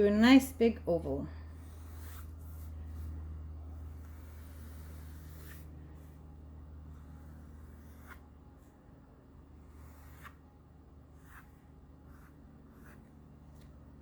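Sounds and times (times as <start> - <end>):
steady low hum: 0.0 - 14.0
pencil scratching on paper: 1.5 - 8.4, 9.6 - 10.4, 11.0 - 14.0.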